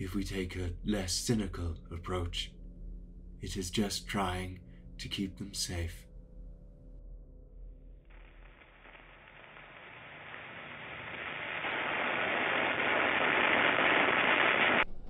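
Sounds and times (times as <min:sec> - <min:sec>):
rushing noise effect: 0:08.1 - 0:15.0.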